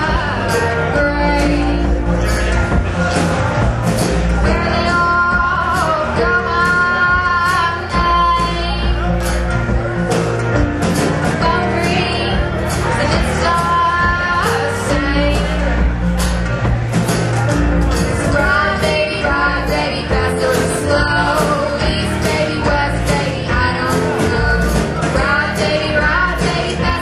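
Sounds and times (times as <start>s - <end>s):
woman singing: 0.0s - 2.1s, 4.4s - 9.1s, 11.4s - 15.8s, 18.2s - 27.0s
live band playing: 0.0s - 27.0s.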